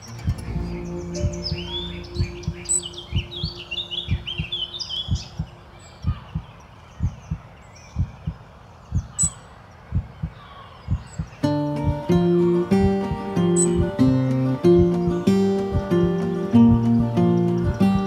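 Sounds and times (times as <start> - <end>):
held low tone: 0.0 - 6.3
birds chirping: 0.0 - 18.0
heartbeat thumps: 0.3 - 9.2, 9.9 - 17.1.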